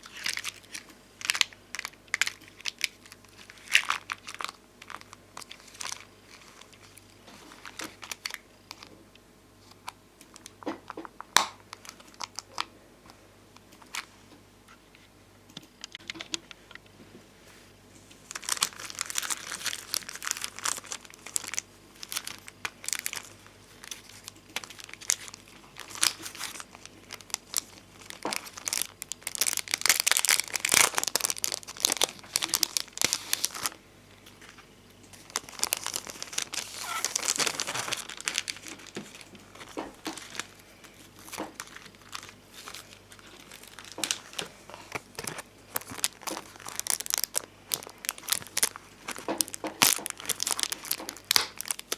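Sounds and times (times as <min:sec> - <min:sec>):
plastic sticker sheets crinkling: 0:00.0 - 0:08.9, 0:09.6 - 0:12.7, 0:18.1 - 0:51.9.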